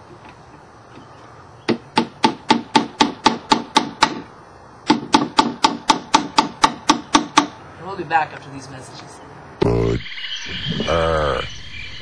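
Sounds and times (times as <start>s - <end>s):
hammer driving nail into wood: 1.7s - 7.5s.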